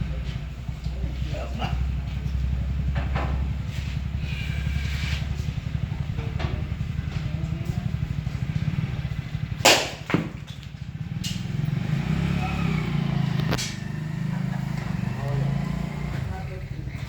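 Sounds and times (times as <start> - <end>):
tractor diesel engine idling: 0.0 - 17.0
loud sharp knock: 9.6 - 10.4.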